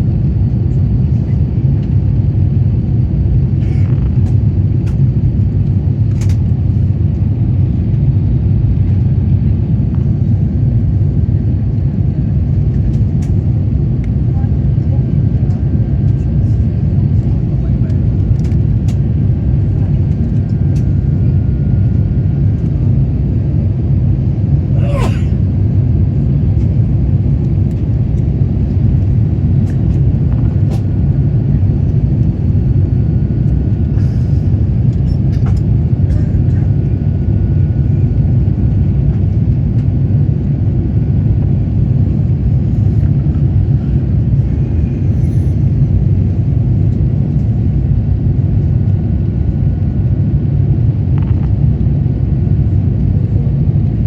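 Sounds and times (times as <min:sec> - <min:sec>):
aircraft cabin engine rumble: 0:00.0 - 0:54.0.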